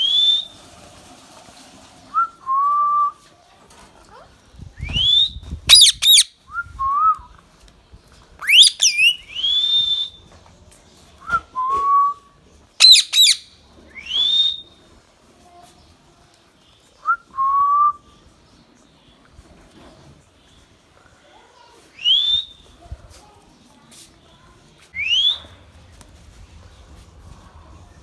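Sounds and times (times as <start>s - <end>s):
parakeet screeching and whistling: 5.7s - 6.3s, 8.4s - 9.6s, 12.8s - 13.5s.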